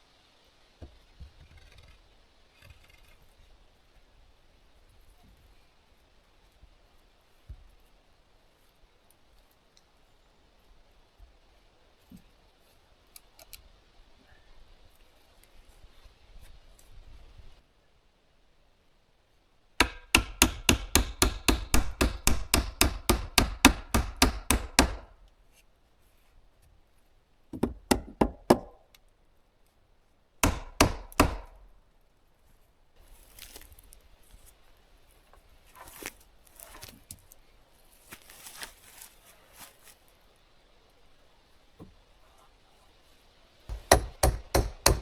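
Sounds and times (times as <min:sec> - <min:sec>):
hammer blows on wood: 0:19.8 - 0:25.1, 0:30.4 - 0:31.6, 0:43.7 - 0:45.0
scraping and rustling of wood: 0:33.0 - 0:40.1.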